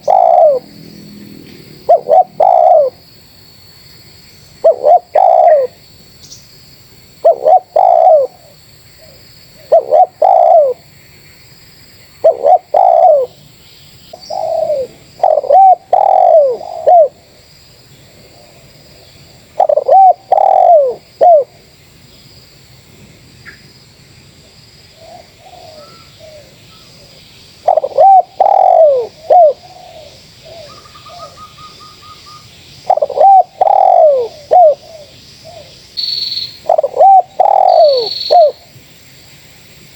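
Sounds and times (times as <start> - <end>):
doves cooing: 0.0 - 3.0, 4.6 - 5.8, 7.2 - 8.6, 9.6 - 10.8, 12.2 - 13.4, 14.1 - 17.3, 19.4 - 21.6, 25.0 - 32.2, 32.8 - 35.7, 36.6 - 38.7
faint high insect-like hum: 0.0 - 39.9.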